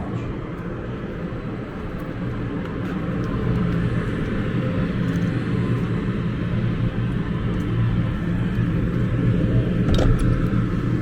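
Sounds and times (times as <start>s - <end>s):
road noise while cycling: 0.0s - 11.0s.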